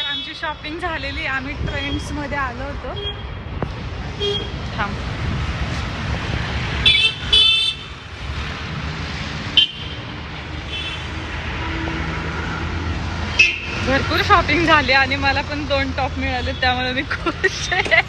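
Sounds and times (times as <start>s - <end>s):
vehicle horns honking: 0.0s - 2.2s, 4.1s - 4.9s, 6.8s - 8.0s, 9.6s - 10.1s, 10.7s - 11.2s, 13.3s - 15.2s
road traffic rumbling: 0.0s - 18.0s.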